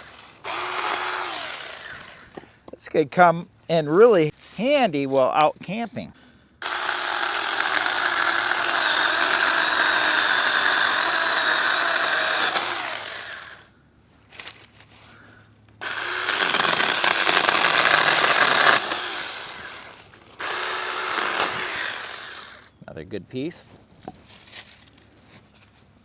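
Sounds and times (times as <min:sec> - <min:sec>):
chainsaw cutting a branch: 0:00.0 - 0:02.4, 0:06.6 - 0:13.7, 0:15.8 - 0:22.7.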